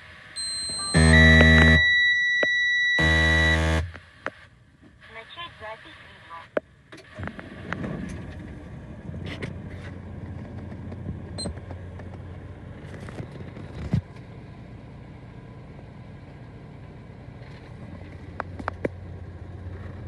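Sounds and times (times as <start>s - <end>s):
vehicle engine idling: 6.6s - 20.0s.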